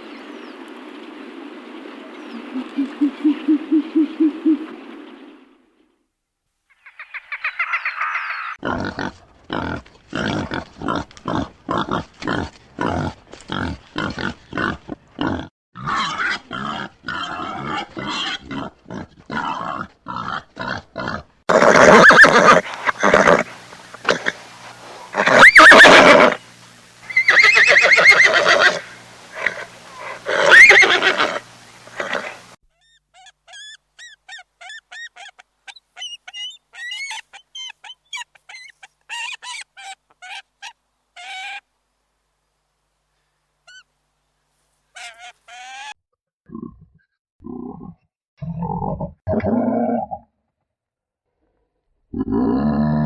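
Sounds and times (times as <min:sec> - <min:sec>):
horse snorting: 0:16.6 - 0:26.4, 0:27.1 - 0:32.5
horse neighing: 0:21.5 - 0:26.4, 0:27.1 - 0:32.5.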